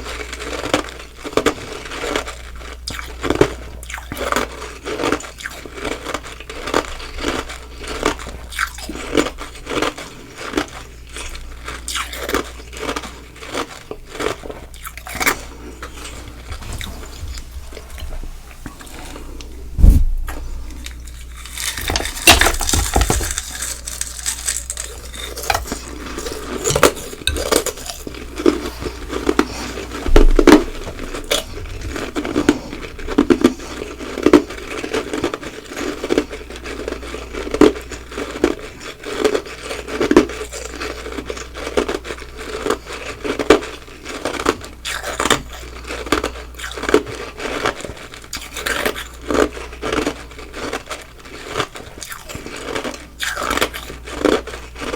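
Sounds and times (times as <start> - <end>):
crunchy ice chewing: 0.0 - 18.1, 20.4 - 54.9.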